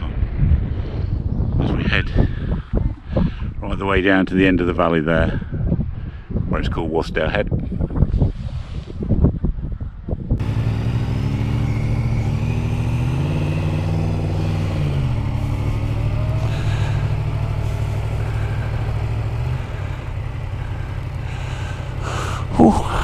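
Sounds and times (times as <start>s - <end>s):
motorcycle engine running: 10.4s - 23.0s.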